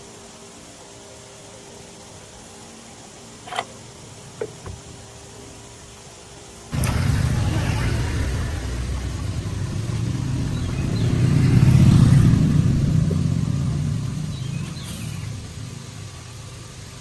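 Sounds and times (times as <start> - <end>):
tractor engine low rumble: 6.7 - 17.0.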